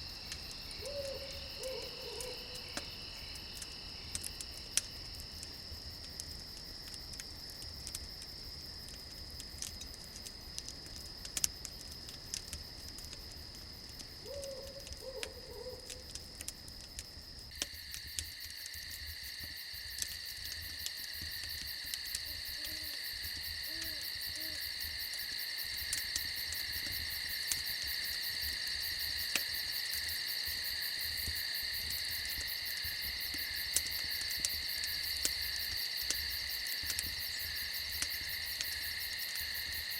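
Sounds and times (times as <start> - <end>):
campfire crackling: 0.0 - 39.9
crickets chirring: 0.0 - 39.9
owl hoots: 0.8 - 2.6, 14.2 - 16.0.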